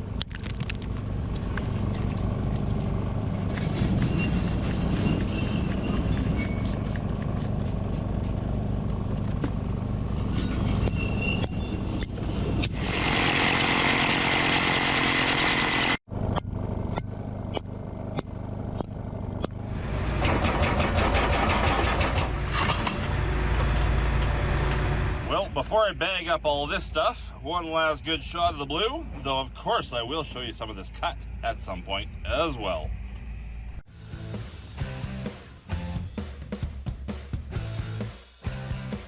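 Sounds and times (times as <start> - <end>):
diesel engine running: 0.0 - 36.2
hydraulic hammer breaking rock: 20.2 - 23.0.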